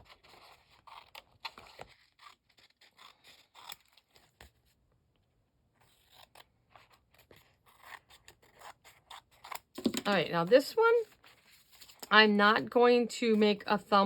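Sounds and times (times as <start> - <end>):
scissors snipping paper: 0.0 - 4.6, 5.8 - 10.2.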